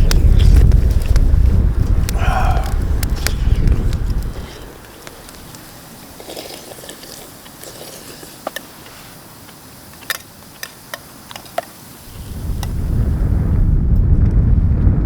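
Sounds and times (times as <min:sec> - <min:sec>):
scraping of small objects: 0:03.2 - 0:09.1.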